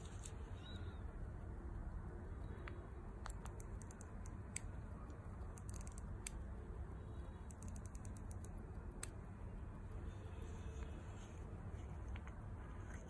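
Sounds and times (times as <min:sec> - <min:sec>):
low steady hum: 0:00.0 - 0:13.0
small sharp clicks: 0:01.7 - 0:06.6, 0:07.4 - 0:09.3.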